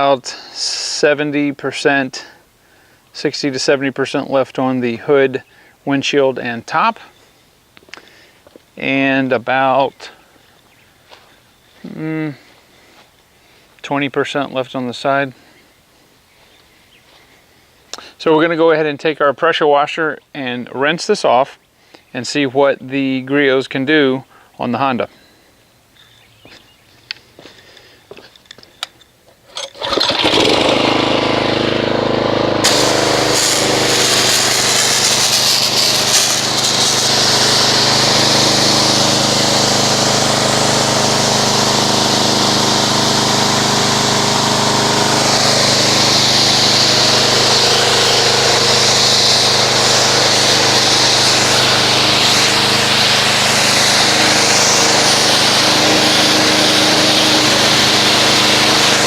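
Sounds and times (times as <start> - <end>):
pressure washer running: 29.7 - 59.0
water spray hissing on car: 32.6 - 59.0.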